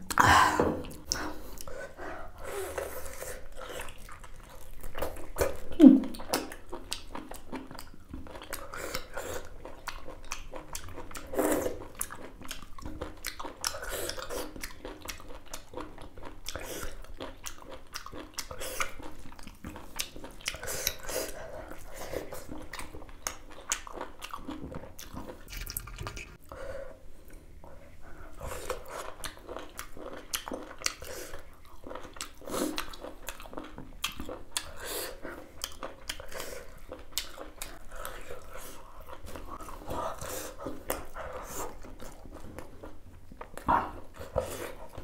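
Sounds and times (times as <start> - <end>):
chewing with wet smacks: 3.1 - 26.5, 27.3 - 45.0.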